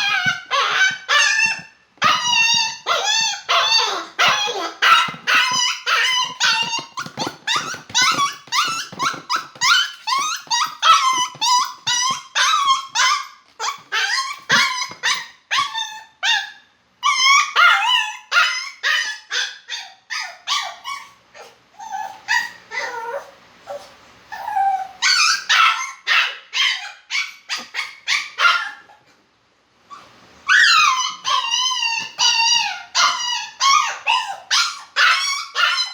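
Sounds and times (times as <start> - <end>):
dog yipping and whimpering: 0.0 - 29.0, 29.9 - 35.9.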